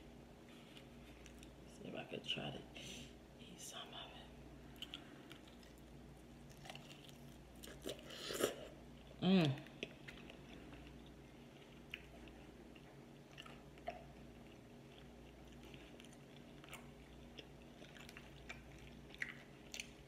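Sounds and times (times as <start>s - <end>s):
low room hum: 0.0s - 20.0s
chewing food with mouth closed: 4.7s - 20.0s.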